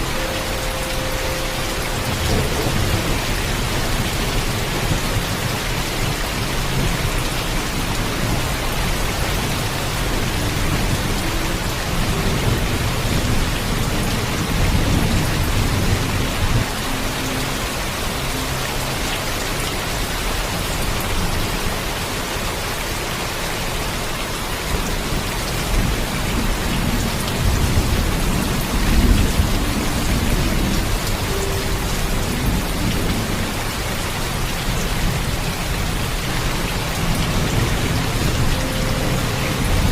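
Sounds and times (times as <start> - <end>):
thunder rumbling: 0.0 - 18.2
heavy rain: 0.0 - 39.9.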